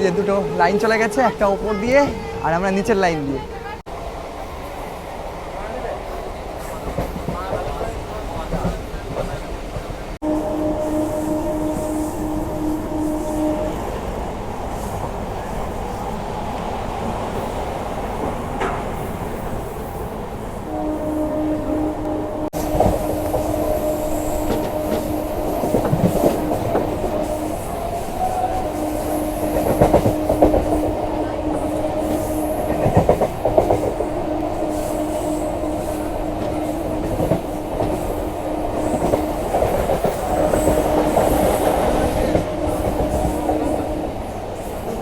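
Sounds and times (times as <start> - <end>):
train electric hum: 0.0 - 45.0
wheels clacking over rail joints: 17.0 - 20.1.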